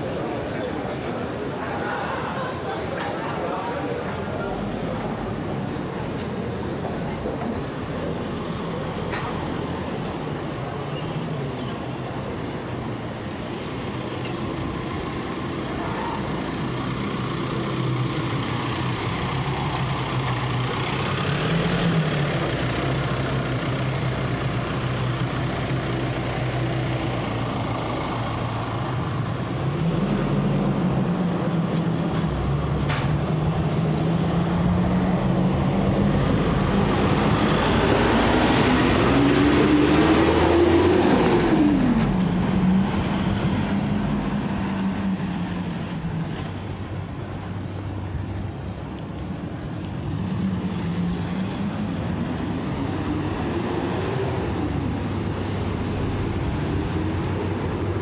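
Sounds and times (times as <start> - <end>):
vehicle engine passing by: 15.0 - 46.8.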